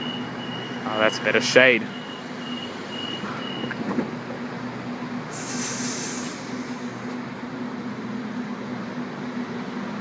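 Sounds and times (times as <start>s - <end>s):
air hiss: 5.3s - 6.9s.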